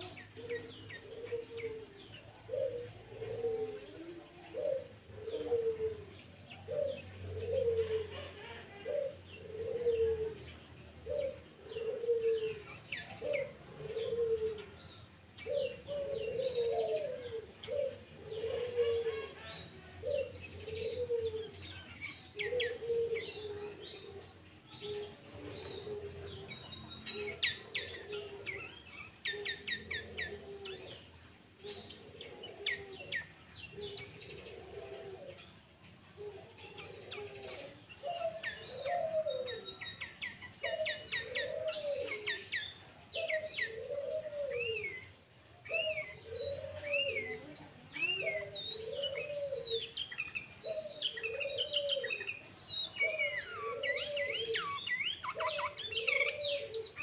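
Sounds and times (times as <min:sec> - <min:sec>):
low cooing call: 0:00.0 - 0:57.0
bulbul singing: 0:36.8 - 0:57.0.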